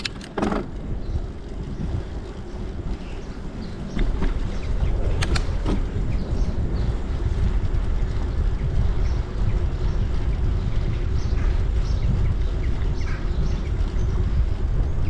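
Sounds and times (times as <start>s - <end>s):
sharp clicks: 0.0s - 0.6s
bicycle tyre rumble: 0.0s - 15.0s
wind buffeting microphone: 0.0s - 15.0s.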